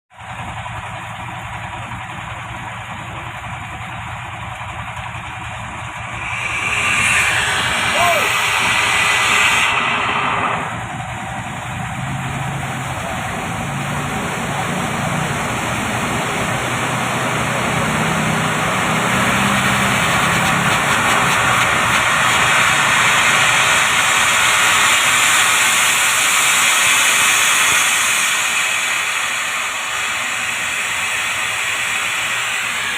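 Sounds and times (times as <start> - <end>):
gas hissing through piping: 3.8 - 13.4, 18.5 - 32.9.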